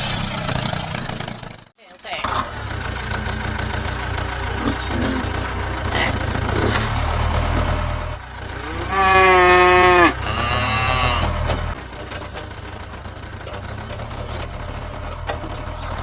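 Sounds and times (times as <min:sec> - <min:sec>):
low engine hum: 0:02.3 - 0:16.0
cow mooing: 0:03.1 - 0:07.8, 0:08.5 - 0:11.8.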